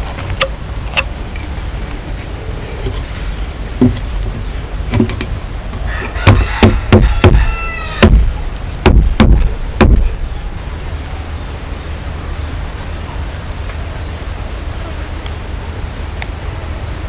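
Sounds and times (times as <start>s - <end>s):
sharp knocks on wood: 4.9s - 5.3s, 6.1s - 10.3s.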